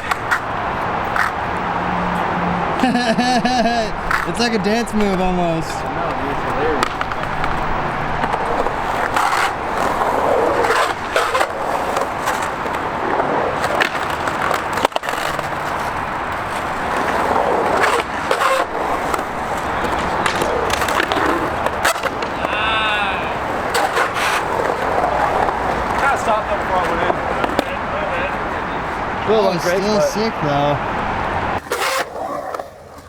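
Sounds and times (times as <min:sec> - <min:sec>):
skateboard wheels rolling: 0:00.0 - 0:33.0
skateboards clacking: 0:00.0 - 0:33.0.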